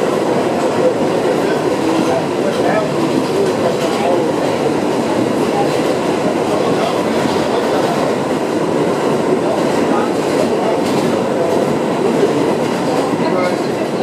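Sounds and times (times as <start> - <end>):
subway car wheels rumbling: 0.0 - 14.0
rail joint clicks: 5.6 - 14.0.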